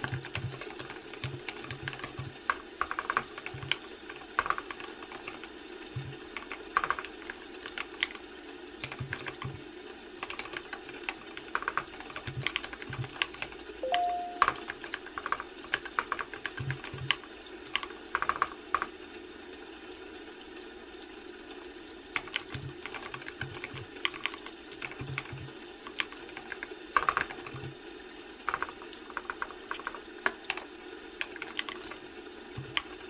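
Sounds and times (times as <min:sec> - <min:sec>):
keyboard typing clicks: 0:00.0 - 0:08.2, 0:08.8 - 0:09.6, 0:10.2 - 0:18.9, 0:22.2 - 0:27.7, 0:28.5 - 0:32.0, 0:32.6 - 0:33.0
two-note rising tone: 0:13.8 - 0:14.6.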